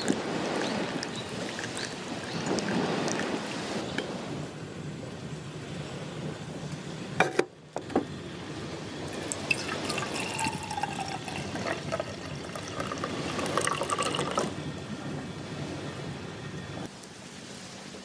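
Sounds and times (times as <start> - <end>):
liquid pouring into a cup: 0.0 - 3.2, 9.2 - 14.5.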